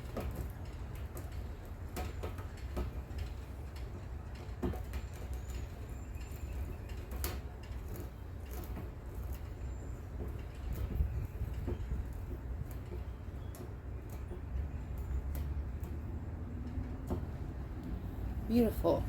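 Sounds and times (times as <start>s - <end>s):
low steady rumble: 10.5s - 19.0s.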